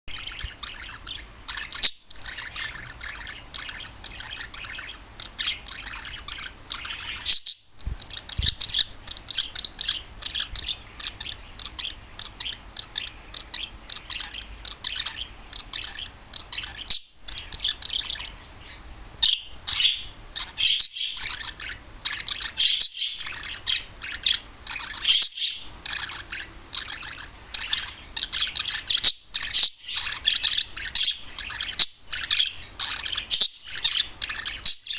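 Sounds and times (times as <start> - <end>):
budgerigar warbling: 0.1 - 18.4, 19.2 - 34.9
sharp loud bird chirps: 0.1 - 34.9.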